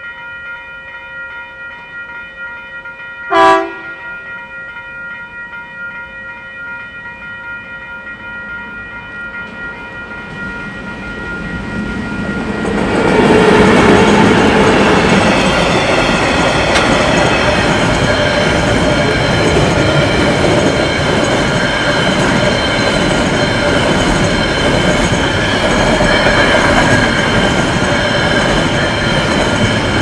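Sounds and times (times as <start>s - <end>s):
train horn toot: 3.3s - 4.2s
passing train rumbling: 3.3s - 5.8s, 6.8s - 30.0s.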